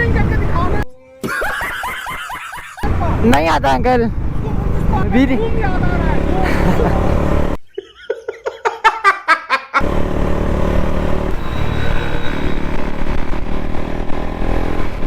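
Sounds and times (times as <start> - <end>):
motorcycle engine rumble: 2.8 - 7.6, 9.8 - 15.0.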